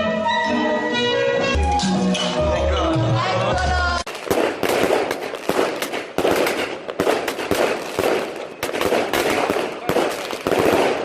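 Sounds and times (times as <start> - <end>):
fireworks and firecrackers banging: 3.6 - 11.0.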